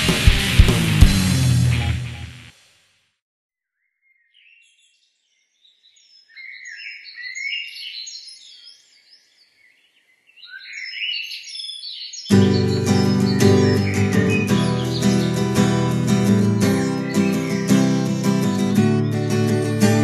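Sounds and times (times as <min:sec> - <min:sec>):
acoustic guitar music: 0:00.0 - 0:02.5, 0:12.3 - 0:20.0
songbirds chirping and singing: 0:03.8 - 0:20.0.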